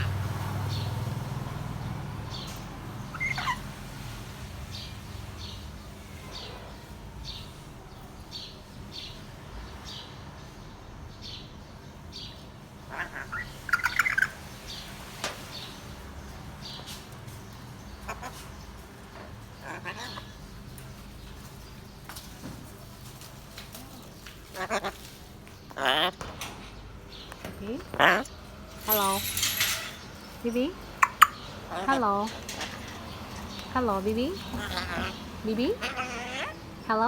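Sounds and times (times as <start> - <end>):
parrot chirping: 0.0 - 0.3, 2.4 - 3.8, 12.8 - 14.5, 18.0 - 18.4, 19.6 - 20.5, 24.4 - 26.3, 27.6 - 37.0
parrot squawking: 0.0 - 0.3, 3.1 - 3.8, 12.8 - 14.4, 18.1 - 18.5, 19.6 - 20.4, 24.4 - 26.3, 27.8 - 30.0, 31.0 - 37.0.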